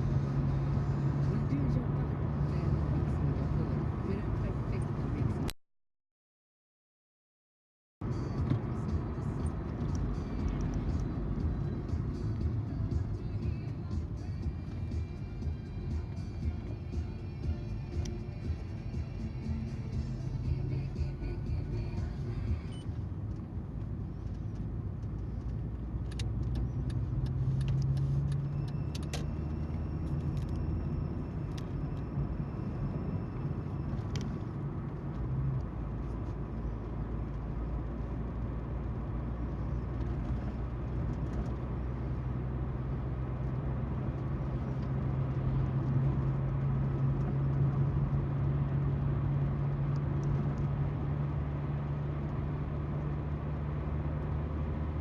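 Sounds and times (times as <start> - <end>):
car engine hum: 0.0 - 5.6, 8.0 - 55.0
tyre noise on road: 22.2 - 55.0.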